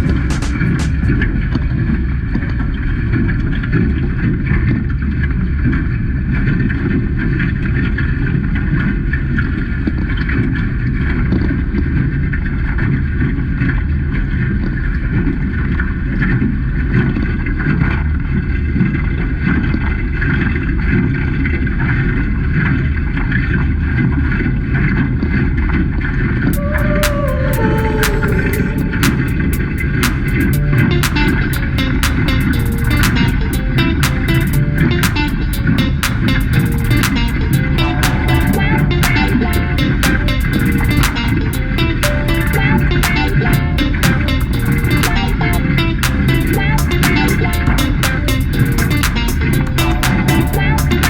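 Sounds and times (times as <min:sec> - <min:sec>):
music: 0:00.0 - 0:01.2, 0:26.5 - 0:51.0.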